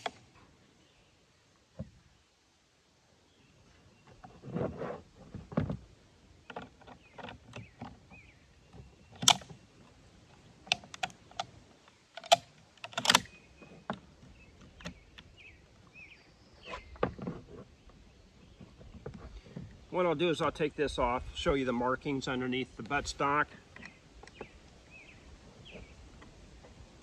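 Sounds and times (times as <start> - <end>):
rifle parts clicking and clacking: 9.2 - 9.6, 12.2 - 13.4.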